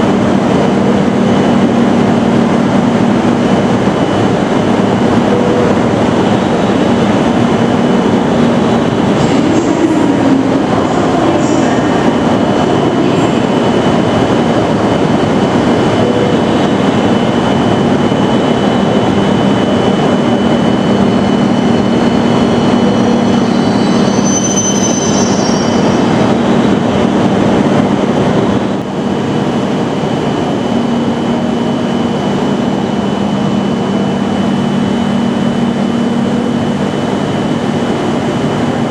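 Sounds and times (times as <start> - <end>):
constant whine: 0.0 - 38.9
brief high squeals: 23.5 - 26.0.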